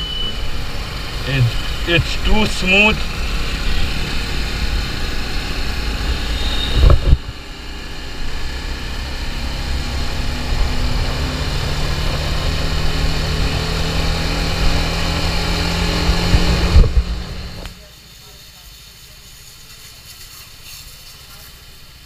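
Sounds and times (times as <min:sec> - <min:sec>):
motorcycle engine running: 0:00.0 - 0:17.7
wind rumbling on microphone: 0:03.1 - 0:17.7.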